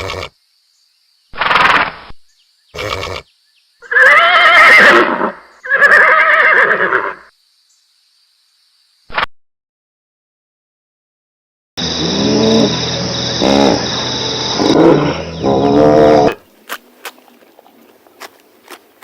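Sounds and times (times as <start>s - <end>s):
horse neighing: 2.8s - 7.3s, 14.6s - 16.4s.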